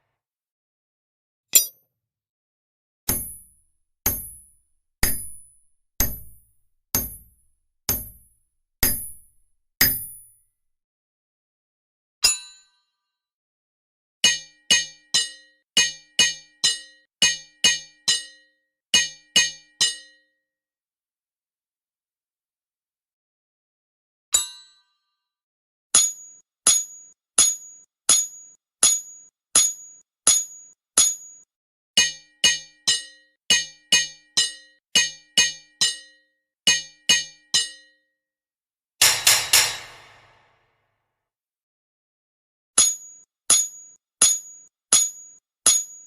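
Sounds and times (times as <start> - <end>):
hammer striking metal: 1.6 - 1.8, 3.1 - 10.3, 39.0 - 40.6
ringing metallic strikes: 39.0 - 40.5.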